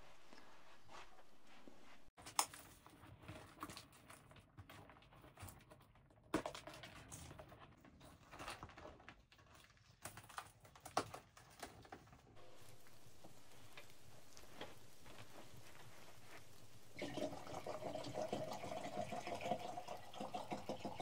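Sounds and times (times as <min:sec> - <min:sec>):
steady faint hiss: 0:12.4 - 0:20.7.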